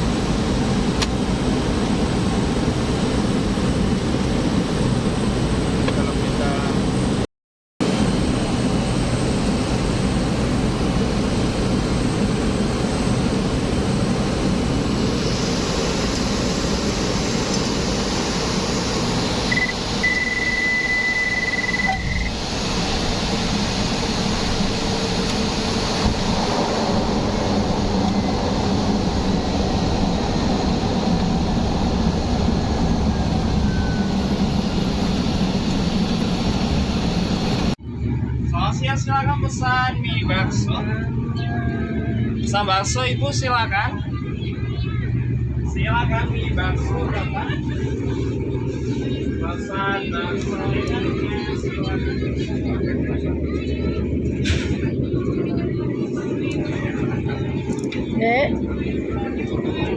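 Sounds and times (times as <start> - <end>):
short high beep: 19.5 - 22.3.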